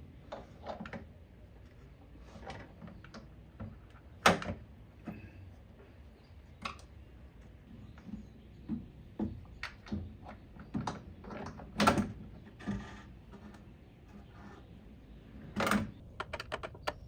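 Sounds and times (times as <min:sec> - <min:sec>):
door hardware knocks and clicks: 0:15.6 - 0:17.0.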